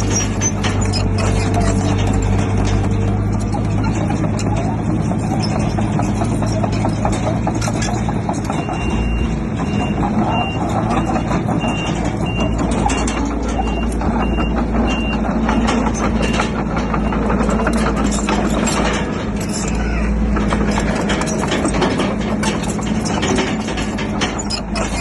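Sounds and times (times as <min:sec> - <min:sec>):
bulldozer diesel engine running: 0:00.0 - 0:25.0
metallic clatter: 0:00.0 - 0:25.0
reversing alarm beeping: 0:08.5 - 0:16.4.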